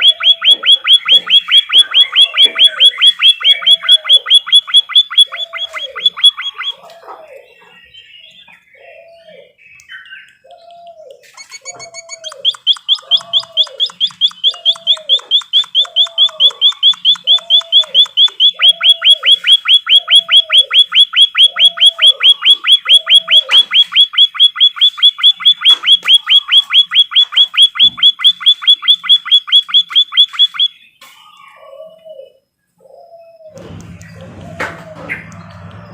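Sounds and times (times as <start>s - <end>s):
lower bird call: 0.0s - 35.9s
songbird trill: 0.0s - 35.9s.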